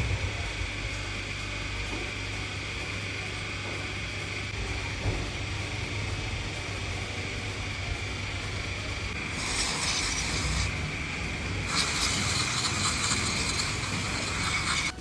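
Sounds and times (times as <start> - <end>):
hiss: 9.3 - 10.7, 11.6 - 14.9.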